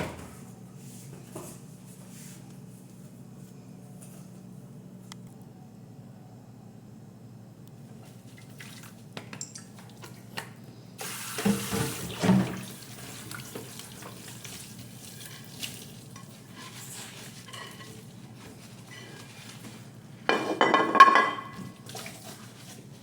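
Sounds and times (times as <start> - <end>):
tap water running into sink: 11.0 - 14.6
dishes clinking: 20.3 - 21.7.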